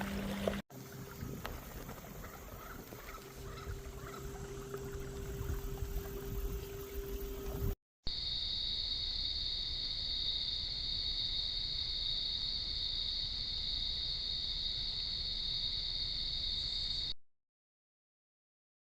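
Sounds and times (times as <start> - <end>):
high-pitched insect chorus: 0.8 - 17.1.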